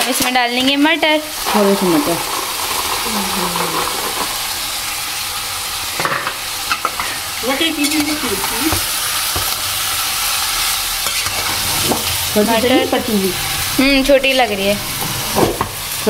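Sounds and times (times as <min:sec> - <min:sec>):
vegetables sizzling in a pot: 0:00.0 - 0:16.0
metal spoon scraping a pot: 0:10.6 - 0:12.1.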